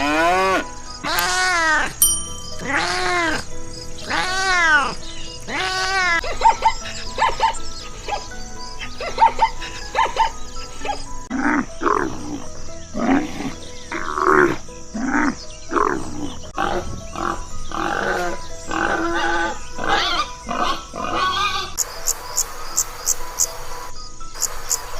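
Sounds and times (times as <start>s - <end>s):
background music: 0.0s - 24.9s
animal calls: 2.6s - 21.8s.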